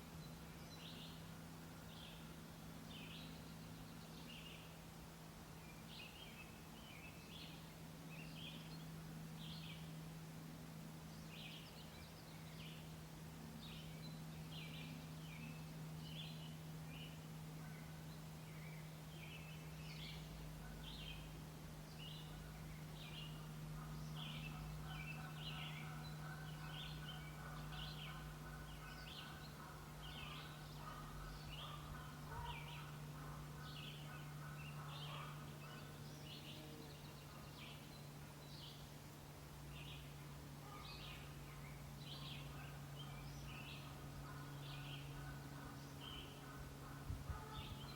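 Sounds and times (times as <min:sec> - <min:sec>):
faint distant drone: 0:00.0 - 0:47.9
steady low hum: 0:00.0 - 0:47.9
birds singing and chirping: 0:13.6 - 0:39.0, 0:39.7 - 0:47.9.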